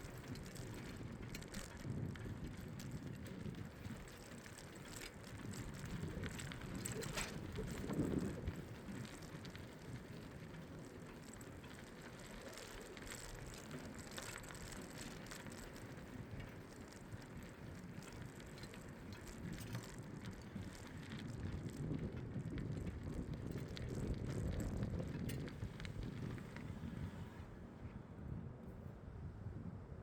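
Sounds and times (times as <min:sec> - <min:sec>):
bike ticks and clicks: 0:00.0 - 0:27.6
bicycle tyres rumbling: 0:00.0 - 0:29.0
wind on microphone: 0:05.3 - 0:10.2, 0:19.4 - 0:30.0.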